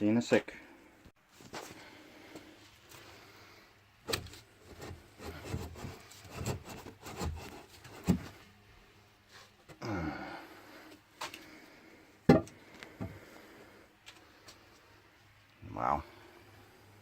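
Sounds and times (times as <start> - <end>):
wood scraping: 4.1 - 8.4
wooden knocks and thumps: 12.3 - 13.2.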